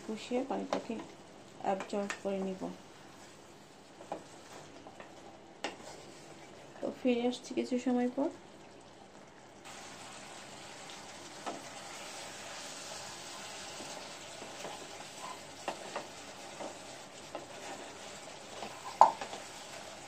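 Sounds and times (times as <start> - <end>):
curry sizzling in a pan: 0.0 - 20.0
wooden spatula knocking pan: 18.6 - 19.4.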